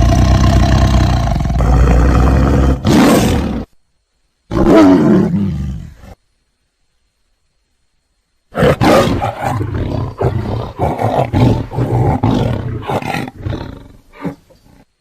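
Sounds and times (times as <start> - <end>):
tiger roaring: 0.0 - 3.7, 8.5 - 14.9.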